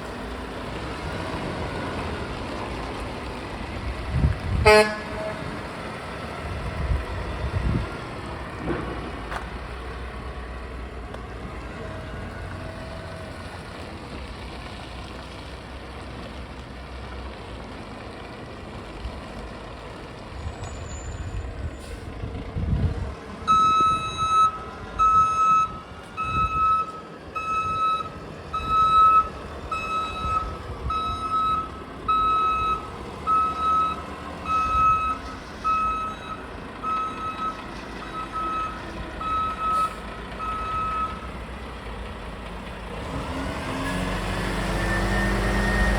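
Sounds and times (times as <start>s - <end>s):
diesel truck engine running: 0.0s - 45.9s
reversing alarm beeping: 23.5s - 41.3s.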